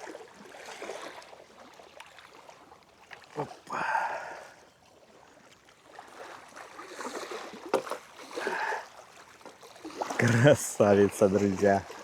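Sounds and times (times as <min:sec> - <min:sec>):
water splashing from fish: 0:05.8 - 0:12.0.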